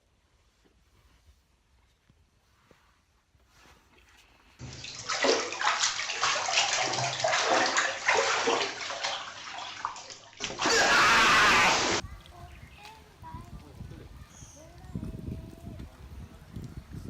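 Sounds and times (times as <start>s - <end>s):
water splashing and sloshing: 4.6s - 12.0s.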